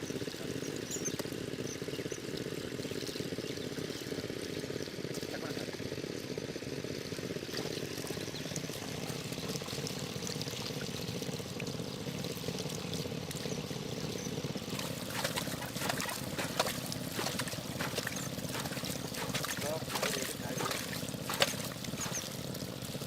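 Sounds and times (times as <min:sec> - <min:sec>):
steady low hum: 0:00.1 - 0:23.0
water pouring and trickling: 0:07.1 - 0:23.0
water splashing: 0:14.0 - 0:23.0.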